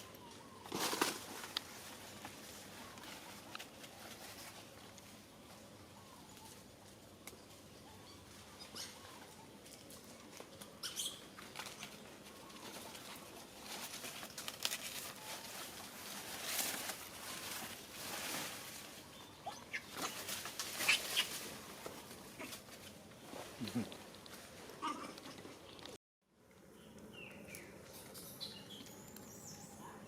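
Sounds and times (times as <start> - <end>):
rustling and pattering: 11.3 - 26.0.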